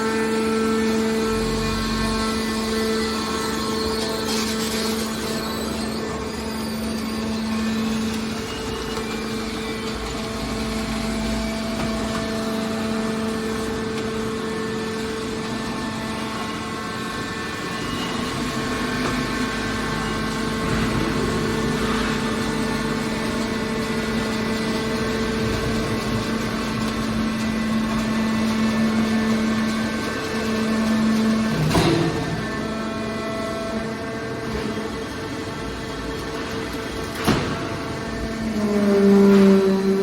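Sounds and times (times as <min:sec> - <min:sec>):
hydraulic baler humming: 0:00.0 - 0:40.0.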